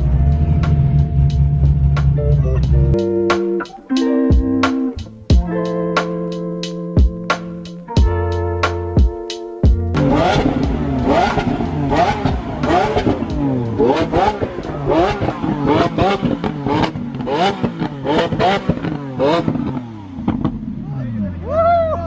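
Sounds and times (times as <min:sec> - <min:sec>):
car engine revving: 0:00.0 - 0:03.0, 0:09.8 - 0:21.5
exhaust cracks and pops: 0:10.0 - 0:20.6.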